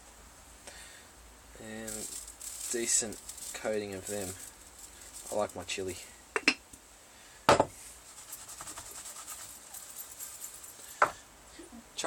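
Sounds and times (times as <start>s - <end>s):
faint fast scratching: 1.6s - 6.1s, 8.0s - 11.0s
knocks on hard surface: 7.5s - 7.7s.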